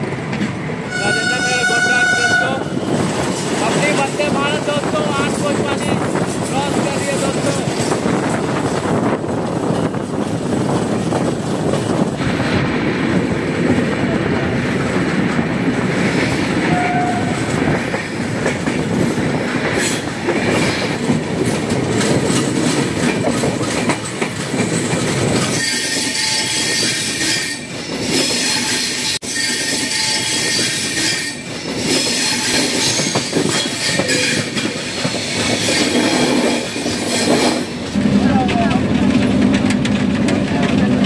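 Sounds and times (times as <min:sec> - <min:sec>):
clickety-clack over rail joints: 0:00.0 - 0:41.0
train wheels rumbling: 0:00.0 - 0:41.0
high wheel squeal: 0:25.5 - 0:37.7.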